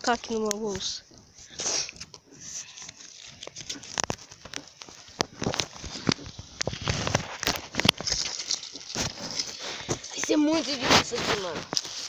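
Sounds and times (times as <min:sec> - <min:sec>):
dry twigs crackling: 0:00.0 - 0:12.0.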